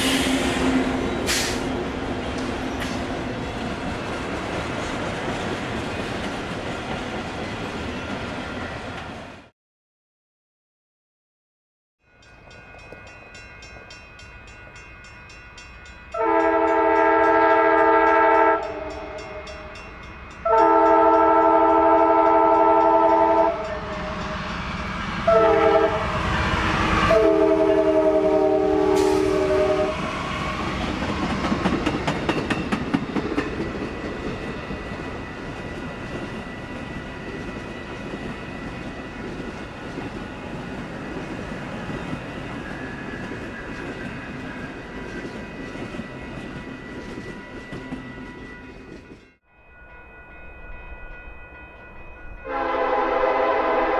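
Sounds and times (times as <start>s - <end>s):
train rumble: 0.0s - 9.5s, 14.5s - 49.4s
locomotive air horn blasts: 16.2s - 19.4s, 20.4s - 24.4s, 25.2s - 30.2s, 52.4s - 53.9s
train wheel clatter: 30.6s - 49.2s.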